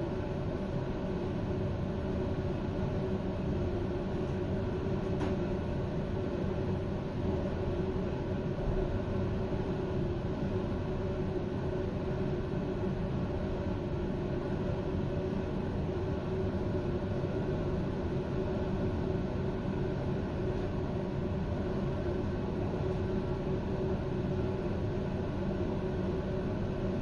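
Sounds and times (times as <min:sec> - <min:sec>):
train equipment rumble and hum: 0:05.0 - 0:05.4.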